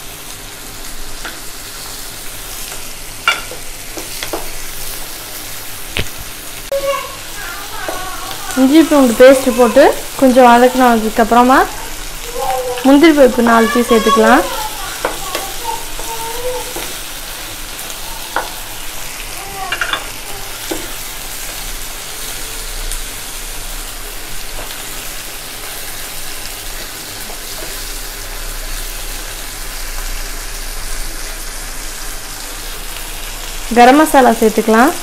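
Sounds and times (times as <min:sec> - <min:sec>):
food sizzling in a pan: 0:00.0 - 0:35.0
spatula knocking against pan: 0:15.0 - 0:16.1.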